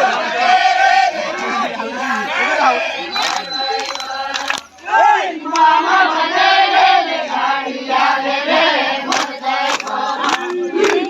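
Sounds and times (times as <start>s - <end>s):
crowd singing and chanting: 0.0s - 11.0s
sharp hand claps: 3.2s - 4.8s, 9.1s - 11.0s.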